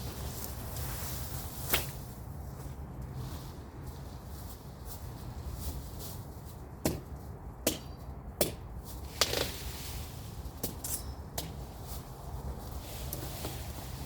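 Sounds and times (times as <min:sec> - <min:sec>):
machete chopping through brush: 0:01.6 - 0:02.1, 0:06.8 - 0:07.1, 0:07.7 - 0:09.7.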